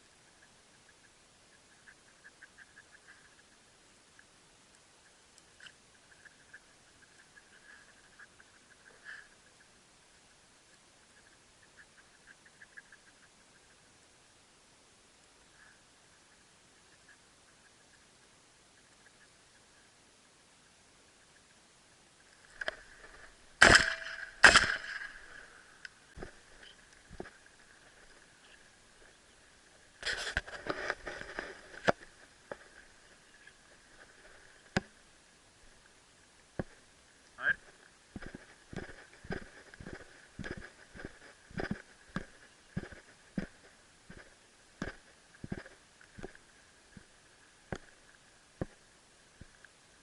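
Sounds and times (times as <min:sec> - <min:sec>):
shotgun shots: 0:23.6 - 0:25.4
footsteps crunching in a field: 0:37.5 - 0:46.4.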